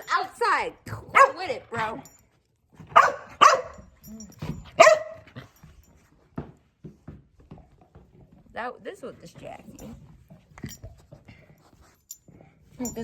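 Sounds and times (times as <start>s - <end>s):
dog barking: 1.1s - 1.6s, 2.9s - 3.9s, 4.7s - 5.5s.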